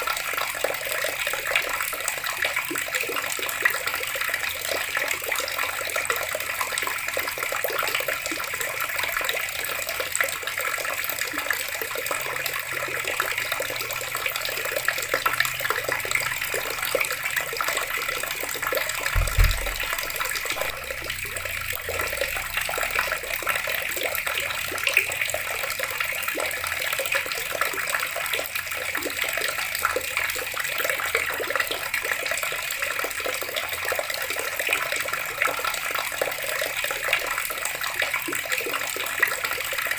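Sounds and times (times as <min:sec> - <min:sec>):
water running from a tap: 0:00.0 - 0:39.9
low thump: 0:19.1 - 0:22.0.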